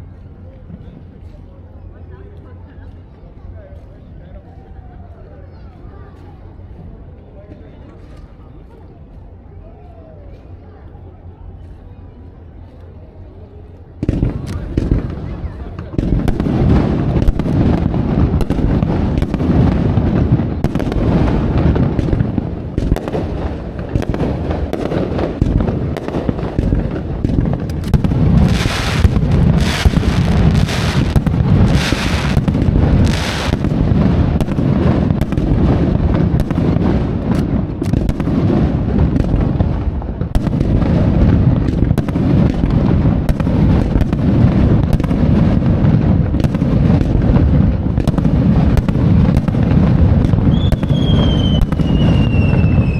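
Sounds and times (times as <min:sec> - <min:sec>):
fireworks booms and cracks: 0:14.0 - 0:52.9.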